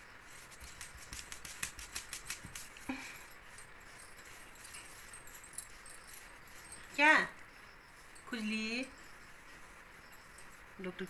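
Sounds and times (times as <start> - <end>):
collar jingling: 0.0 - 11.0
dog scratching itself: 0.2 - 2.9.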